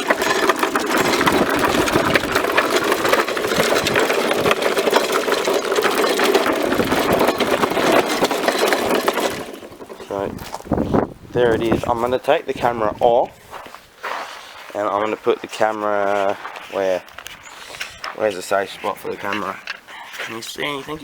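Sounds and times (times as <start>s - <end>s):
lawnmower engine running: 0.0s - 13.2s.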